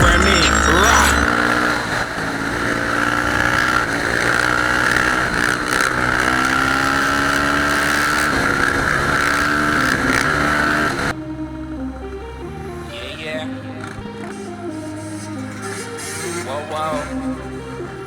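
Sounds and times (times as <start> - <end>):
motorcycle engines revving: 0.0 - 11.2, 13.7 - 18.0.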